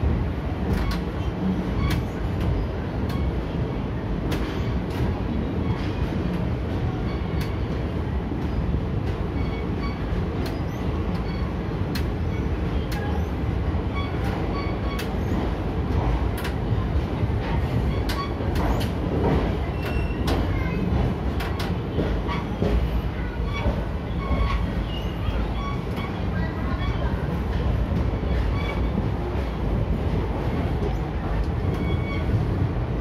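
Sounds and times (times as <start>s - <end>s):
train running gear rumble: 0.0s - 33.0s
wheels clicking over rail joints: 4.2s - 32.3s
high squeaks: 13.9s - 15.4s, 22.3s - 27.3s, 28.2s - 29.0s, 31.7s - 32.4s.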